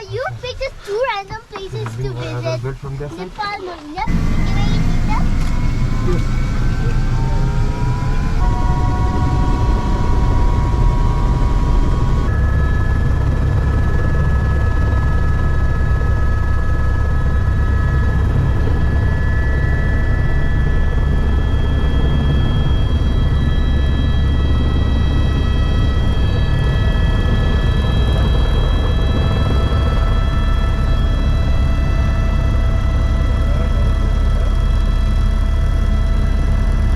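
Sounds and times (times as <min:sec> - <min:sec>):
helicopter drone and whine: 0:00.0 - 0:36.9.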